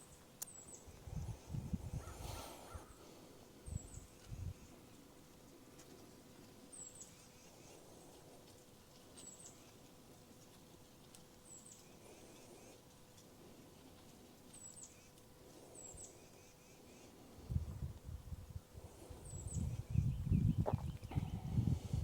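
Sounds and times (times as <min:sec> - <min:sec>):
small bird chirping: 0:09.1 - 0:09.8, 0:19.2 - 0:21.2.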